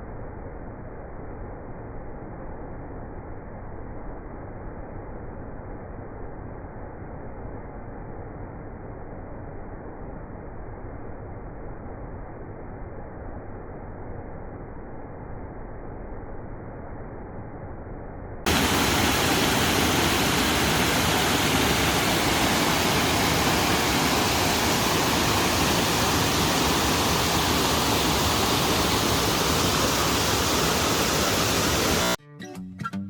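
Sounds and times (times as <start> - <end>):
waterfall rushing: 18.5 - 32.2.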